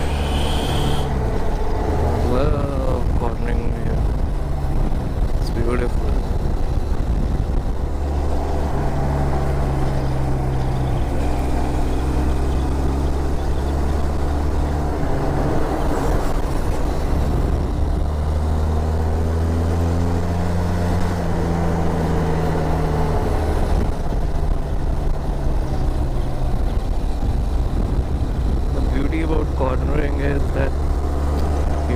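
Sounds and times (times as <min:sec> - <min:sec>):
motorcycle engine running: 0:00.0 - 0:03.2.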